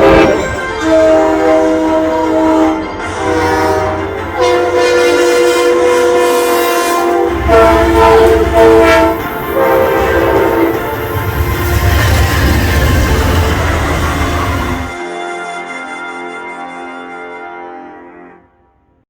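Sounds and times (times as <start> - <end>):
model train horn blasts: 0.0 - 12.2.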